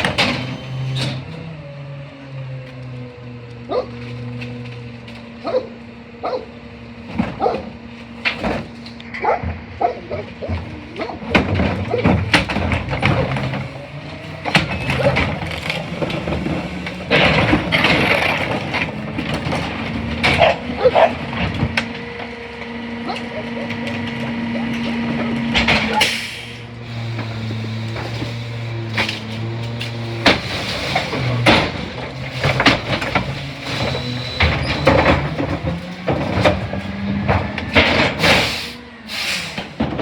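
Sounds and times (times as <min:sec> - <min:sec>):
garbage truck engine hum: 0:00.0 - 0:40.0
dog barking: 0:03.7 - 0:04.0, 0:05.4 - 0:06.5, 0:09.2 - 0:11.2, 0:20.4 - 0:21.2
loud hissing: 0:38.2 - 0:39.7.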